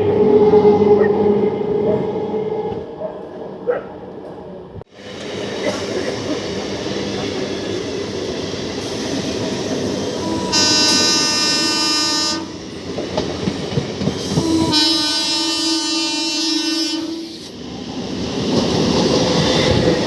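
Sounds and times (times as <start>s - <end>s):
train horn blasts: 10.2s - 12.6s, 14.3s - 17.5s
train wheels clattering over rail joints: 12.8s - 14.7s.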